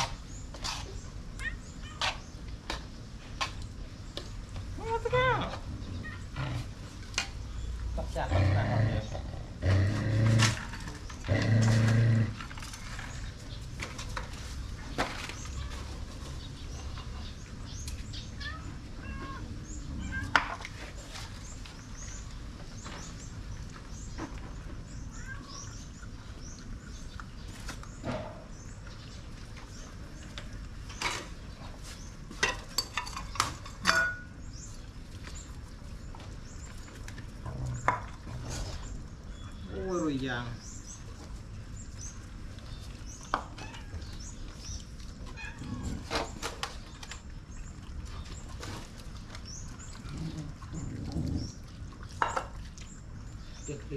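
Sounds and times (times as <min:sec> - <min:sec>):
food bowls clinking: 0:32.3 - 0:34.6.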